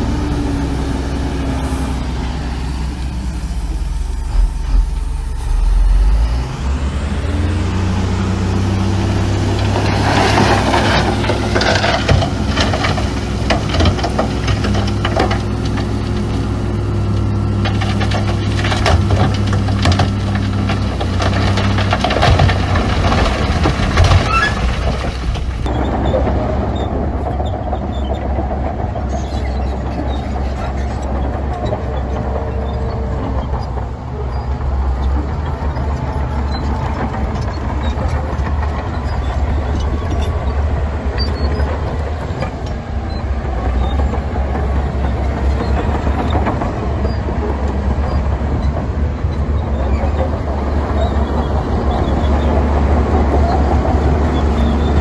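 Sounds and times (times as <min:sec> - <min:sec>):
diesel construction machinery running: 0:00.0 - 0:55.0
metal clanking and knocks: 0:17.6 - 0:55.0.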